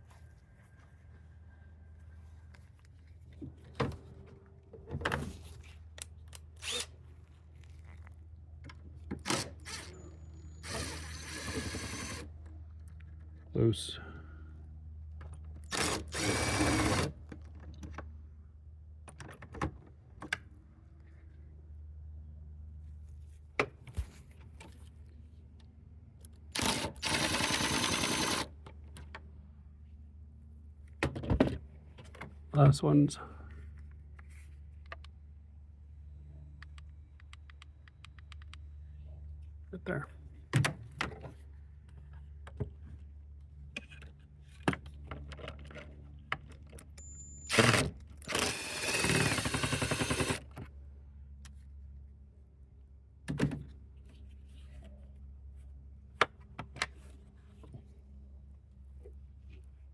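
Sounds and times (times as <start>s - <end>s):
drill spinning: 6.6s - 6.9s, 9.4s - 9.9s, 10.6s - 12.2s, 15.7s - 17.1s, 26.6s - 28.5s, 47.5s - 50.4s.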